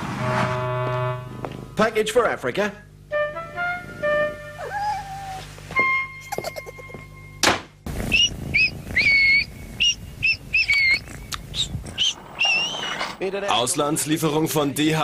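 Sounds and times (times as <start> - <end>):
steady tone with sweep: 0.0 - 2.0
bird whistled chirps: 8.1 - 13.0.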